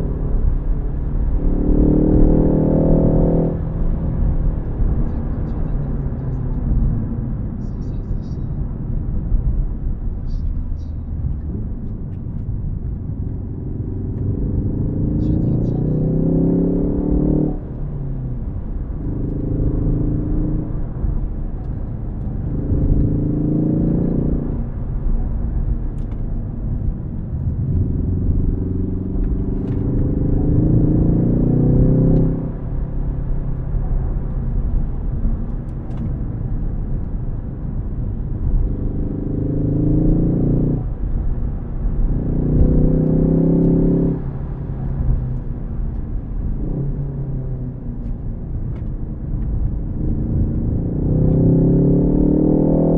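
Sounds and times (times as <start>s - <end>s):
low road rumble: 0.0s - 52.9s
car engine revving hard: 42.1s - 45.0s, 50.0s - 52.9s.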